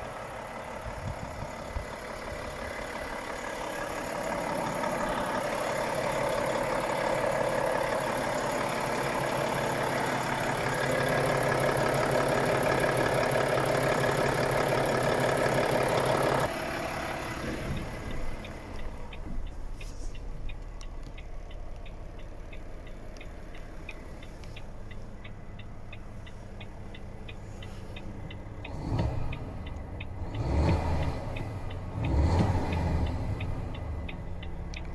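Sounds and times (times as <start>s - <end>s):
diesel truck engine running: 0.0s - 34.9s
fast ticking: 0.9s - 16.5s.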